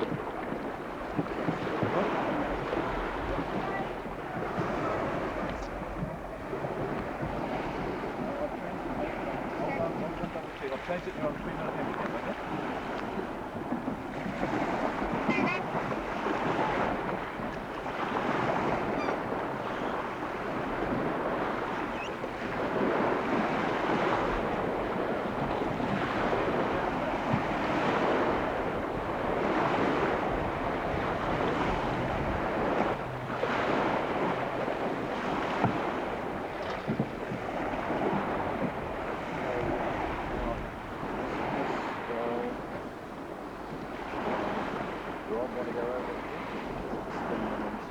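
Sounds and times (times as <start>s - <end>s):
rushing water: 0.0s - 47.9s
wind: 0.0s - 47.9s.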